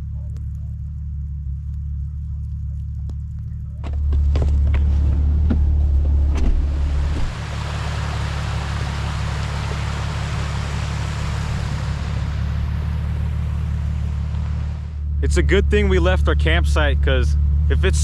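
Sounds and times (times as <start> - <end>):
vehicle engine droning: 0.0 - 18.0
steady hiss: 6.9 - 15.0.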